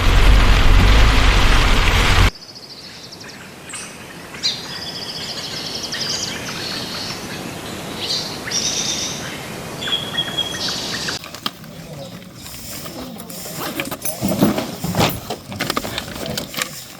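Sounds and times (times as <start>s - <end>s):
loud rushing noise: 0.0s - 2.3s
birds chirping and trilling: 2.4s - 16.9s.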